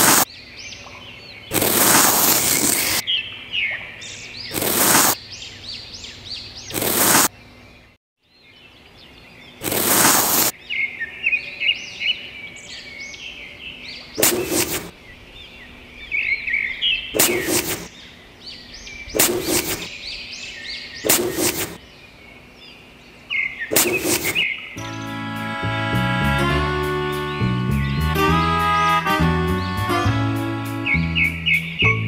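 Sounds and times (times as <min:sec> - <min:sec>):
trowel scraping damp sand: 0:00.0 - 0:00.3, 0:01.5 - 0:03.0, 0:04.5 - 0:05.2, 0:06.7 - 0:07.3, 0:09.6 - 0:10.5, 0:14.2 - 0:14.9, 0:17.2 - 0:17.9, 0:19.2 - 0:20.0, 0:21.0 - 0:21.8, 0:23.7 - 0:24.5
birds chirping: 0:00.0 - 0:32.0.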